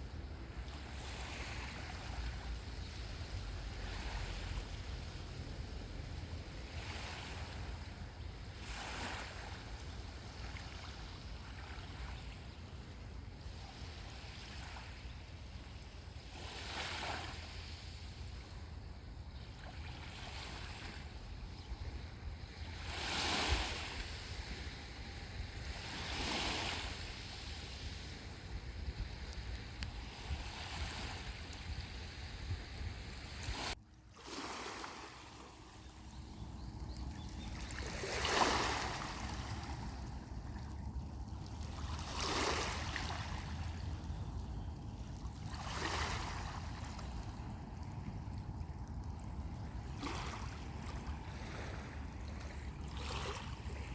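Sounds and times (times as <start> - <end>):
waves breaking on sandy beach: 0.0 - 12.8, 13.4 - 36.0, 37.4 - 40.8, 41.5 - 48.6, 49.3 - 53.9
wind rumble on microphone: 16.6 - 33.8, 36.1 - 53.9.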